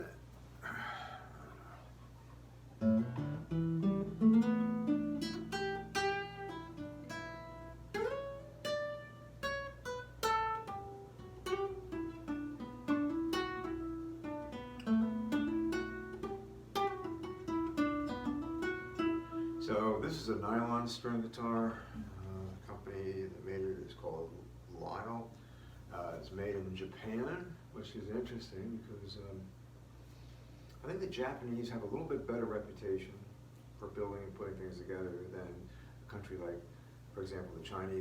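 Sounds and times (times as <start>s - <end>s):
steady low hum: 0.0s - 38.0s
nylon-string guitar melody: 2.8s - 20.0s.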